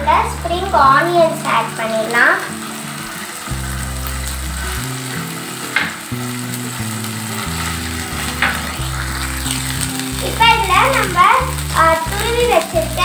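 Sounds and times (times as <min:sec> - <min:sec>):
vegetables sizzling in hot oil: 0:00.0 - 0:13.0
spatula scraping pan: 0:04.6 - 0:11.7.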